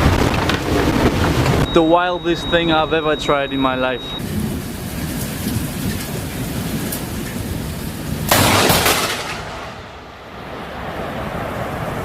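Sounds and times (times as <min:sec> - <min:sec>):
steady rumbling noise: 0:00.0 - 0:12.0
loud crash: 0:08.3 - 0:10.9.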